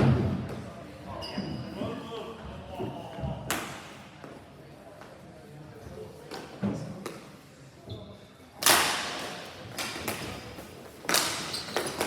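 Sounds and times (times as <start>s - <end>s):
ball and sticks hitting rink boards: 8.6s - 12.0s.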